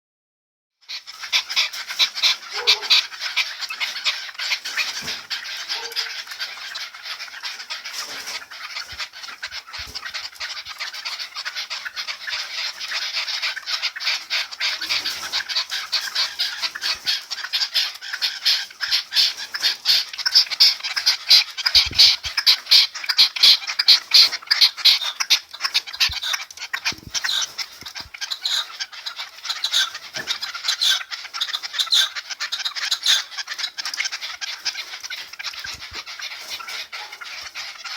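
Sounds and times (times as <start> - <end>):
birds chirping and calling: 0.9 - 37.9.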